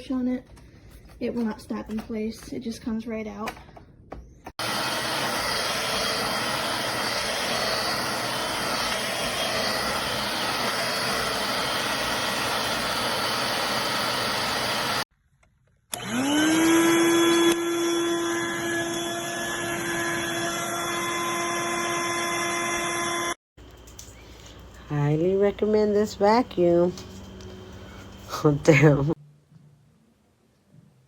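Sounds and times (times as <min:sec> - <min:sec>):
stick vacuum running: 0:04.6 - 0:15.0, 0:15.9 - 0:29.0
vacuum motor whine starting up: 0:04.6 - 0:15.0, 0:15.9 - 0:29.2.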